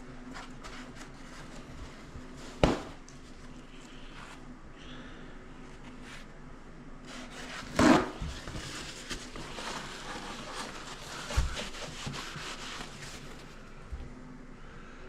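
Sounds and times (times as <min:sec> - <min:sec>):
scraping and rubbing on wood: 0:07.1 - 0:13.6.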